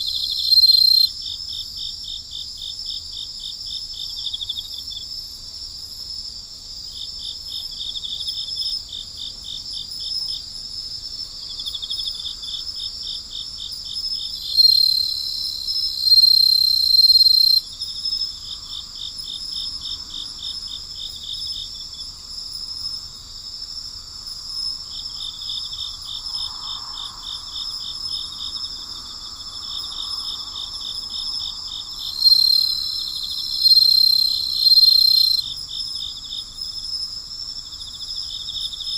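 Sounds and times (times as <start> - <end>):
nearer insect high tone: 0.0 - 1.1, 14.4 - 17.6, 32.0 - 35.4
high-pitched insect ringing: 0.0 - 2.2, 11.4 - 38.9
crickets trilling: 0.0 - 38.9.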